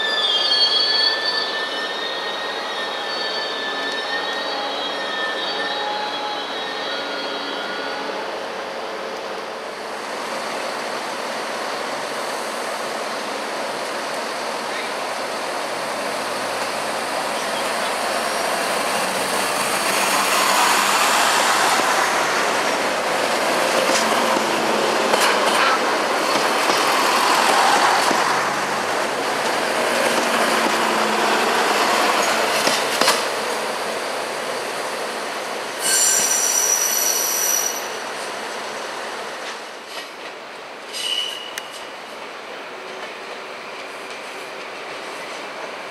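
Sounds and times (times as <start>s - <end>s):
high squeal: 0.0s - 8.6s, 16.6s - 24.8s, 35.8s - 38.0s, 40.9s - 41.9s
train running past: 0.0s - 45.9s.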